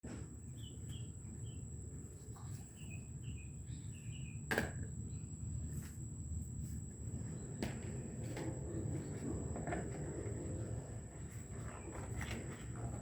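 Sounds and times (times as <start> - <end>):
small bird chirping: 0.5 - 1.7, 2.4 - 4.4.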